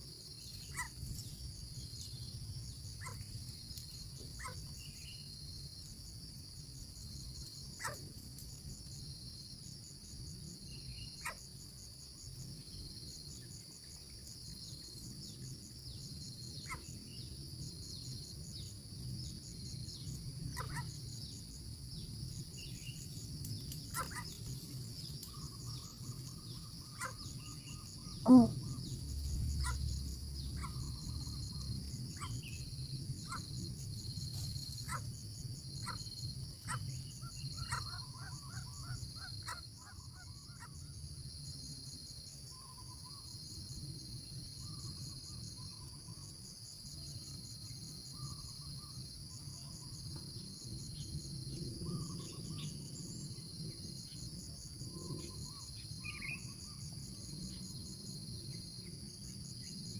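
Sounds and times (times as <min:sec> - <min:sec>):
insects trilling: 0:00.0 - 0:59.9
constant high tone: 0:28.1 - 0:28.9.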